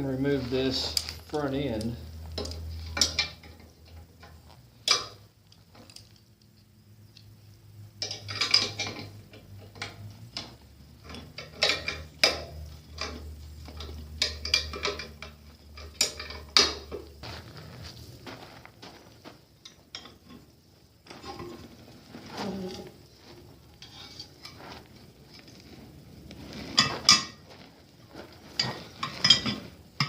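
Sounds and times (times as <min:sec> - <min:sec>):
hand tools clanking on metal: 0:00.0 - 0:06.1, 0:08.0 - 0:17.2, 0:19.6 - 0:20.5, 0:26.7 - 0:27.4, 0:28.5 - 0:30.0
low steady hum: 0:00.0 - 0:30.0.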